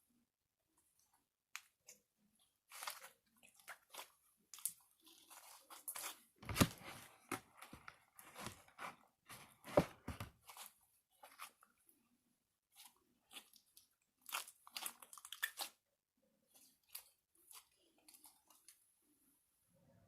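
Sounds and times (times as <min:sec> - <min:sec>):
slime squishing with wet pops: 0:12.8 - 0:15.8.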